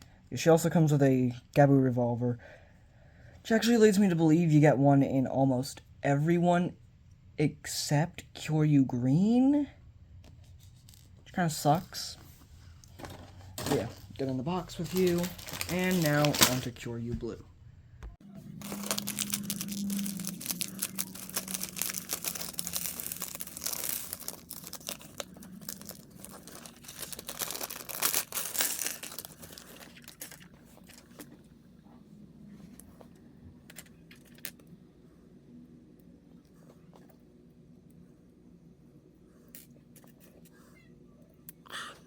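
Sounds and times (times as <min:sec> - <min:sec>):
plastic wrapping crinkling and tearing: 0:13.6 - 0:16.8, 0:18.3 - 0:31.3.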